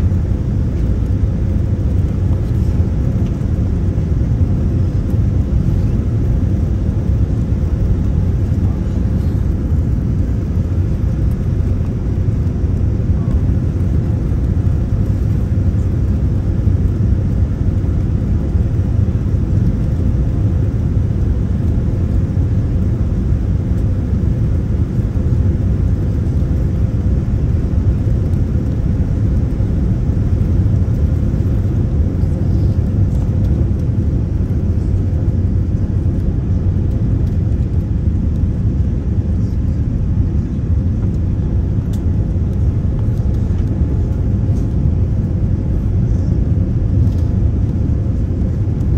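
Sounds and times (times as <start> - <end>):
engine and airflow rumble: 0.0 - 48.9
faint steady hum: 0.0 - 48.9.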